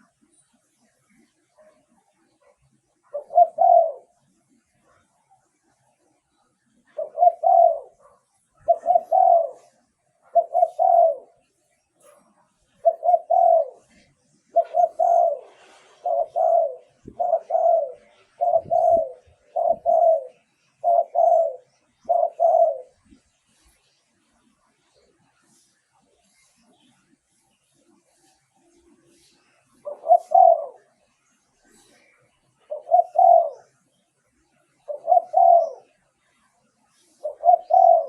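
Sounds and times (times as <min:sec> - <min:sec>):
dove cooing: 0:01.1 - 0:05.1, 0:06.7 - 0:23.3, 0:27.9 - 0:31.0, 0:31.6 - 0:33.8, 0:34.8 - 0:36.0, 0:37.0 - 0:38.0.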